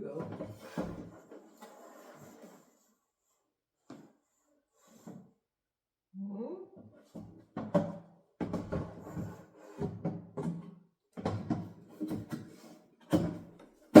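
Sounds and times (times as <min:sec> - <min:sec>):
fridge shelves knocking and scraping: 0:07.5 - 0:14.0.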